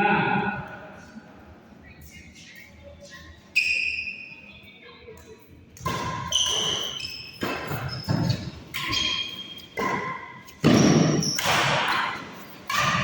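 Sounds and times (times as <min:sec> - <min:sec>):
rackets hitting shuttlecock: 0:05.8 - 0:13.0
shoes squeaking on court floor: 0:05.8 - 0:13.0.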